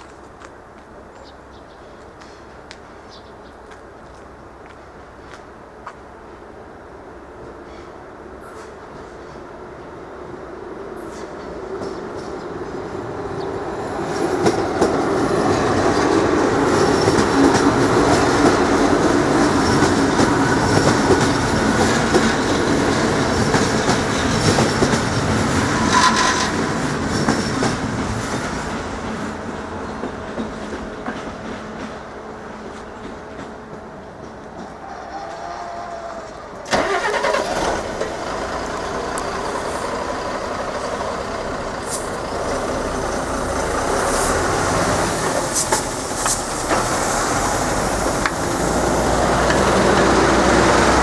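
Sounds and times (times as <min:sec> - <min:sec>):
train wheels clattering over rails: 0:11.0 - 0:34.9, 0:36.7 - 0:51.0
train wheel squeal: 0:13.4 - 0:28.7, 0:34.6 - 0:37.1.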